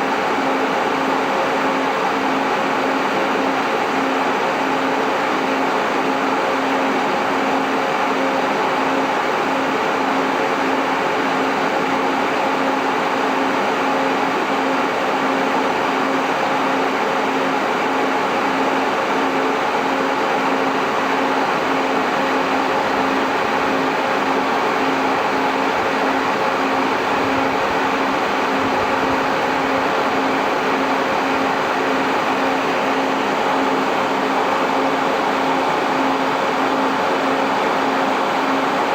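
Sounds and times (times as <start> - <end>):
cooling fans running: 0.0 - 38.9.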